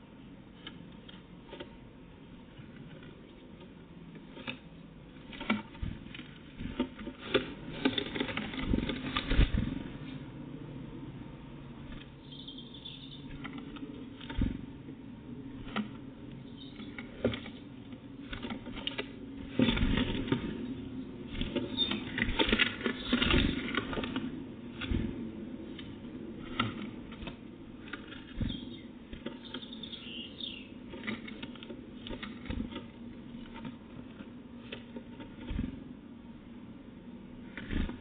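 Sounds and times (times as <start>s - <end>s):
small birds tapping and scrabbling: 0.6s - 9.9s, 11.8s - 35.8s
wing flutters: 5.2s - 10.2s, 15.4s - 35.9s.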